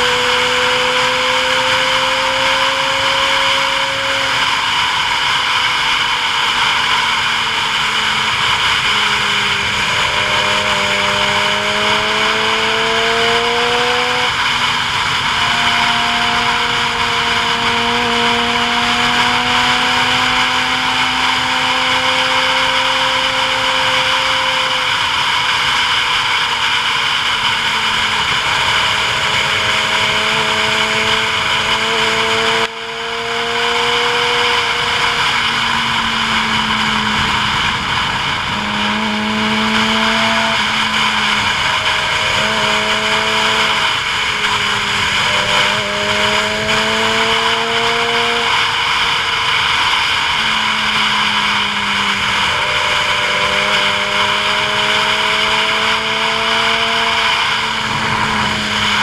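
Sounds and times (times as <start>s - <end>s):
vehicle engine running: 0.0s - 59.0s
wind and road noise: 0.0s - 59.0s.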